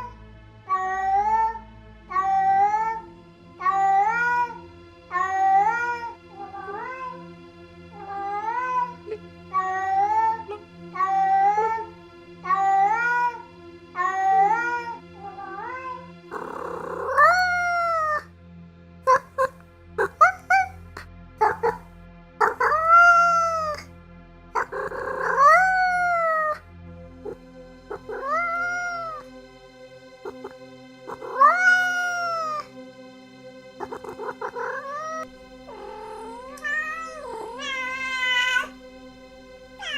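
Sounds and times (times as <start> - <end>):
cat meowing: 0.7 - 3.0, 3.6 - 7.2, 8.0 - 13.4, 14.0 - 18.3, 19.1 - 20.8, 21.4 - 21.8, 22.4 - 23.9, 24.6 - 26.6, 27.2 - 29.3, 30.2 - 32.7, 33.8 - 38.8.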